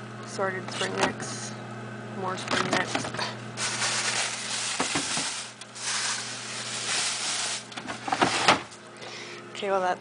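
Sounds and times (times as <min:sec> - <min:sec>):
rustling of food packages: 0:03.6 - 0:08.5.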